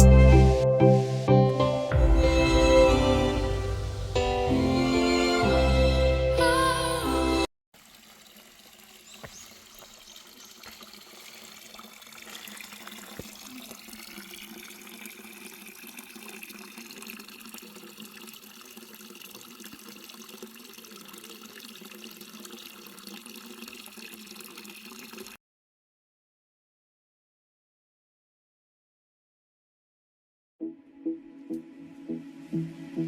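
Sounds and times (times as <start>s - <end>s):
water trickling and splashing: 7.8s - 25.4s.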